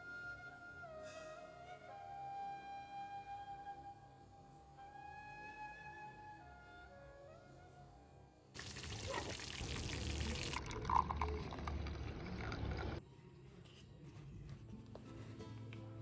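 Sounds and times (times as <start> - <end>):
water pouring into a container: 8.6 - 13.0.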